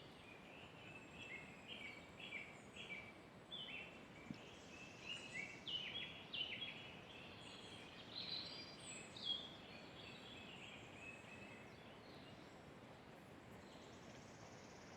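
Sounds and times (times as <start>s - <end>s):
faint steady hiss: 0.0s - 14.9s.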